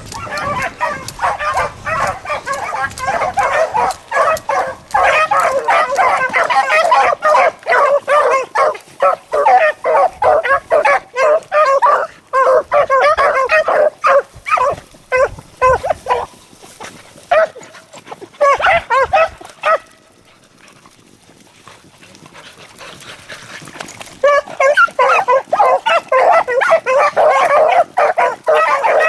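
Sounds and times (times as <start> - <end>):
beagles baying: 0.0 - 16.3, 24.2 - 29.0.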